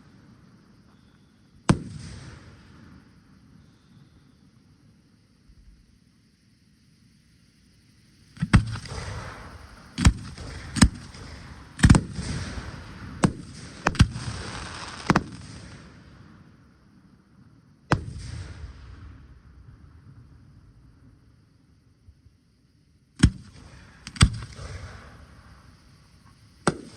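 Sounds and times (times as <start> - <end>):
crackling hiss: 0.0 - 26.9
fireworks bursting: 8.4 - 16.4, 23.2 - 26.9.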